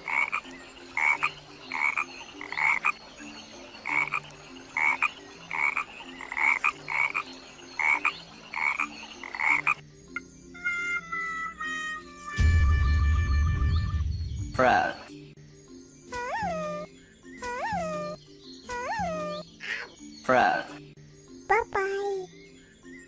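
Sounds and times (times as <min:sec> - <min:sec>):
frog croaking: 0:00.0 - 0:03.0, 0:03.8 - 0:09.8.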